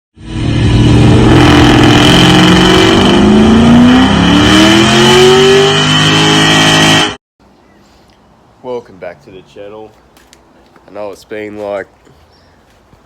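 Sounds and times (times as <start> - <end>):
car engine accelerating hard: 0.2 - 7.2.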